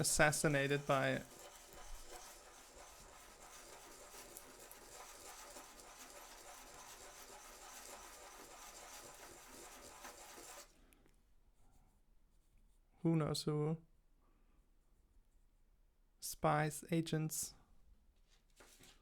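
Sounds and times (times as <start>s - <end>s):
faint scratching and rubbing: 0.0s - 10.7s.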